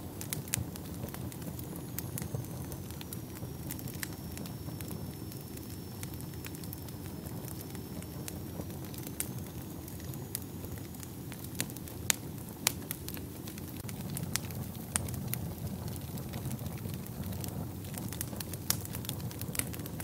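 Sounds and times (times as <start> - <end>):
fire rumbling: 0.0 - 20.0
wood crackling and popping: 0.0 - 20.0.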